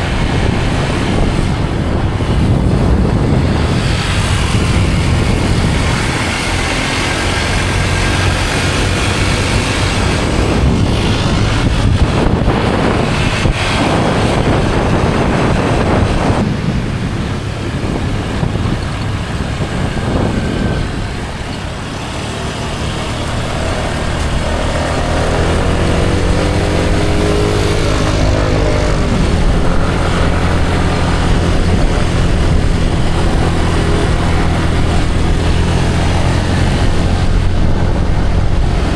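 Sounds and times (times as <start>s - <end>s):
road noise: 0.0s - 38.9s
scooter engine running: 0.0s - 38.9s
wind: 0.0s - 38.9s.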